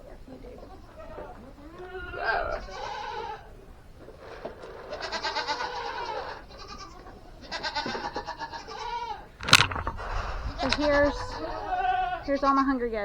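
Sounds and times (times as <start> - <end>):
goats bleating: 0.7 - 3.5, 4.5 - 9.4, 10.6 - 13.0.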